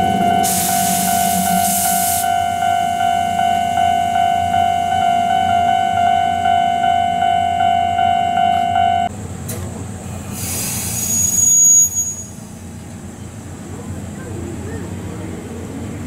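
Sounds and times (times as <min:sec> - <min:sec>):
train wheels squealing: 0:00.0 - 0:05.3, 0:10.2 - 0:12.7
level crossing warning bell: 0:00.0 - 0:09.1.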